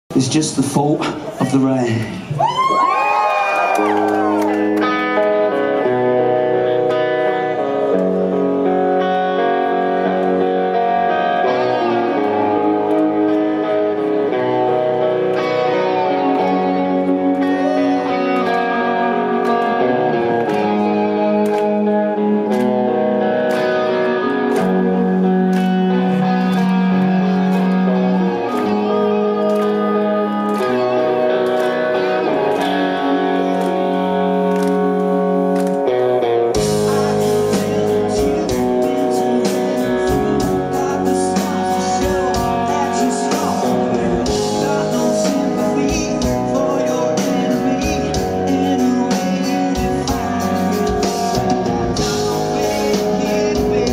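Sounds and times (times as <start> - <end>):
electric guitar picking chords: 0.1 - 53.9.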